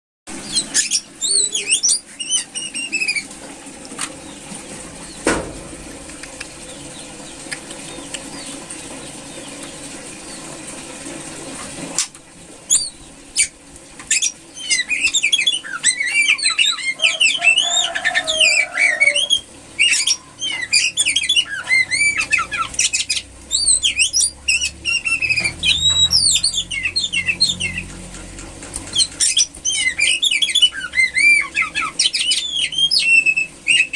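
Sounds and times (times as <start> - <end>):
bird chirping calls: 0.4 - 3.4, 12.7 - 33.9
clicks: 6.0 - 6.6.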